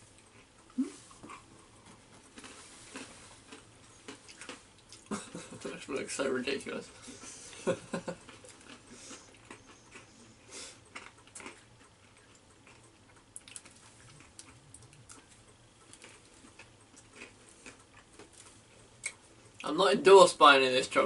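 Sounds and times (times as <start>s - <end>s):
person chewing crunchy candy: 0.1s - 5.3s, 8.2s - 19.6s.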